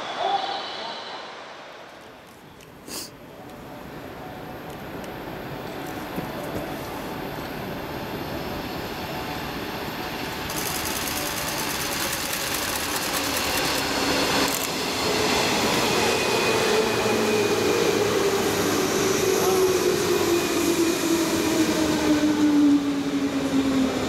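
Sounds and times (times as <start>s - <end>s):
steady whine: 0.0s - 2.7s
electric train passing: 0.0s - 24.0s
wheel and rail noise: 3.4s - 16.3s.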